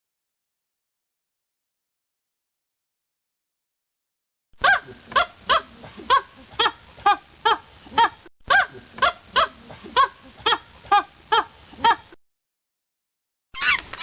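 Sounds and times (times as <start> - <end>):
animal short pitched calls: 13.6 - 14.0.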